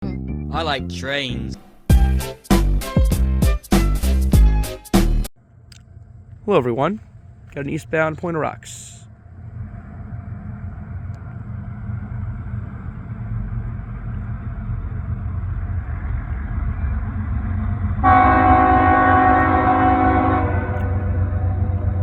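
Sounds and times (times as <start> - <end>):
locomotive engine rumble: 5.4 - 22.0
locomotive air horn blast: 18.0 - 21.6.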